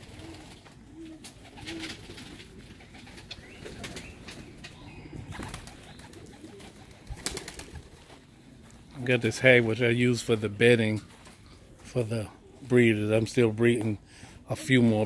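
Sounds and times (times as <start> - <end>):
rustles: 0.0 - 12.9
pigeons cooing softly: 0.0 - 15.0.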